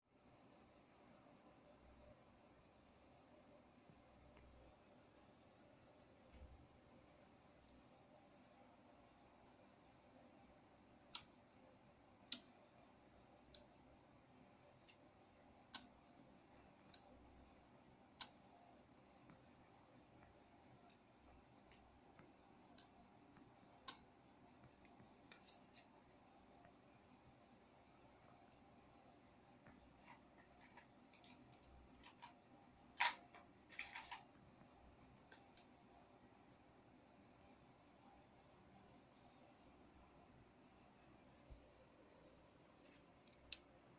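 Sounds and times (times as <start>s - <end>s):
light clicks and taps: 20.2s - 26.8s, 42.8s - 43.7s.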